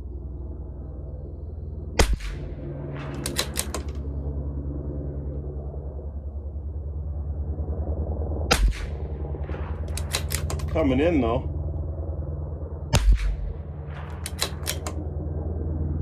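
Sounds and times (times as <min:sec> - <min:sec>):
steady low hum: 0:00.0 - 0:16.0
rifle shot: 0:02.0 - 0:04.0, 0:08.5 - 0:10.9, 0:12.9 - 0:15.0
rifle bolt metallic clicks: 0:03.1 - 0:04.0, 0:09.9 - 0:10.8, 0:13.0 - 0:15.0.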